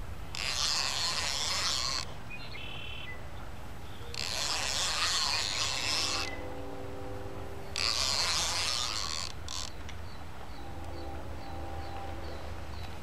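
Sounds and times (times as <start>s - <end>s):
fishing reel drag buzzing: 0.3s - 2.2s, 4.0s - 9.8s.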